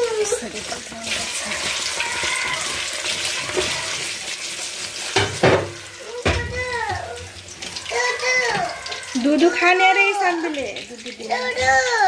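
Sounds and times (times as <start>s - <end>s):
clatters against pan: 0.0s - 6.6s
food sizzling in oil: 0.0s - 12.0s.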